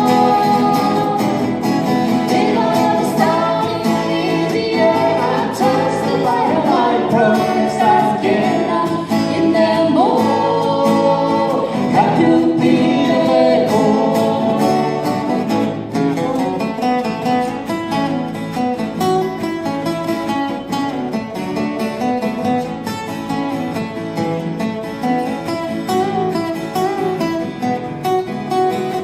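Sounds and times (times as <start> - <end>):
person singing: 0.0 - 16.7
guitar accompaniment: 0.0 - 29.0.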